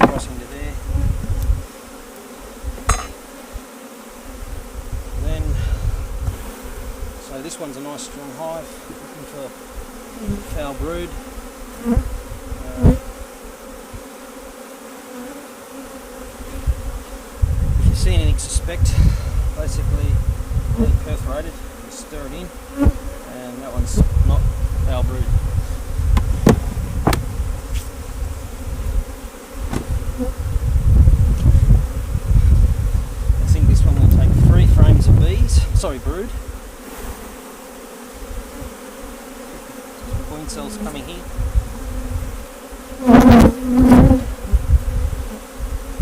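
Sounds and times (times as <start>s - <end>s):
dull knocks: 0.0s - 0.3s, 26.1s - 27.4s, 29.6s - 30.0s
honey bees buzzing: 0.0s - 46.0s
sharp knock: 2.8s - 3.2s, 26.2s - 27.3s.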